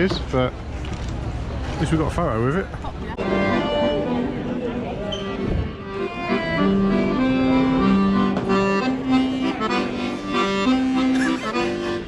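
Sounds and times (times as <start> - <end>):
accordion playing a tune: 3.1 - 12.0.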